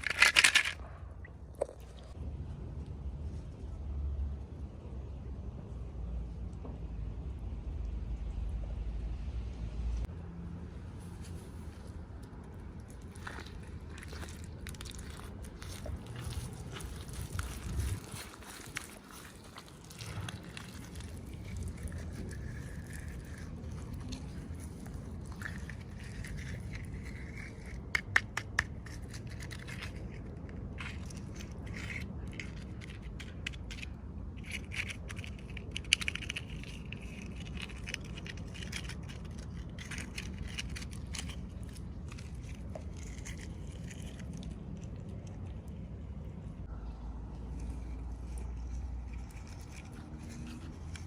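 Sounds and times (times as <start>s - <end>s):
plastic and cardboard crackling: 0.0s - 1.0s, 12.2s - 45.8s.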